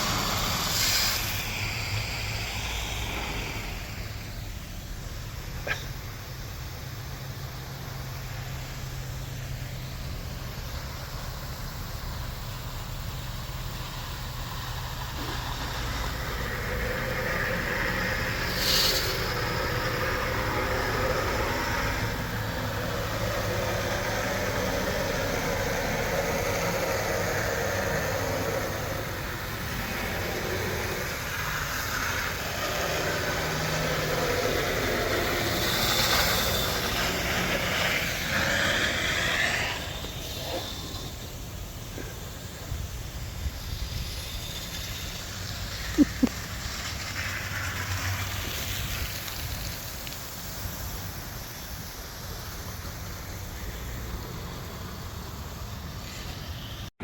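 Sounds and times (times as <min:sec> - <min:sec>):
short hiss: 0:00.0 - 0:09.7, 0:18.3 - 0:20.0.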